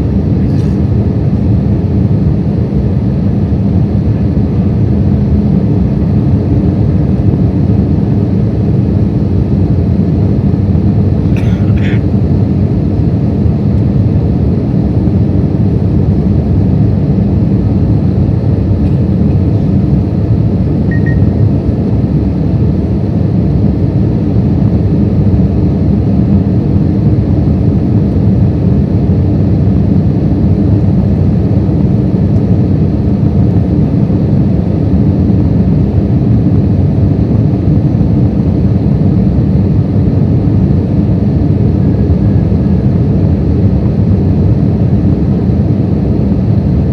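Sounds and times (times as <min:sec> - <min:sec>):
airplane cabin rumble: 0:00.0 - 0:46.9.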